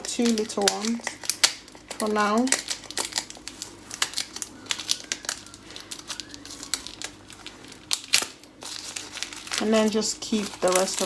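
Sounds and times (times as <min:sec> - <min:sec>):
plastic bottles clicking and tapping: 0:00.0 - 0:08.3.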